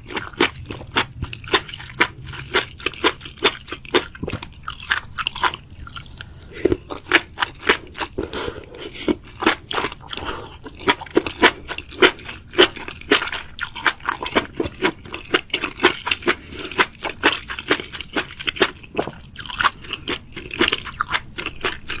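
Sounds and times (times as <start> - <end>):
crunchy food being chewed: 0.0 - 22.0.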